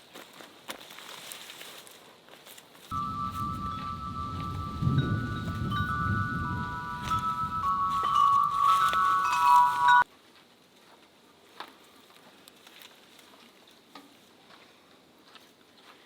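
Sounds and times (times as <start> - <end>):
chimes ringing: 2.9 - 10.0.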